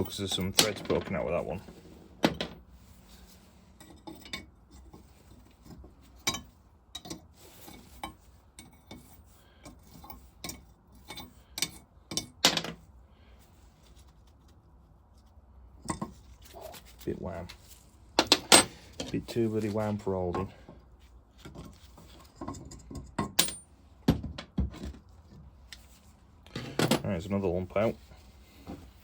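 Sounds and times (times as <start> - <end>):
metal tools clinking and knocking: 0.0 - 1.3, 3.8 - 12.8.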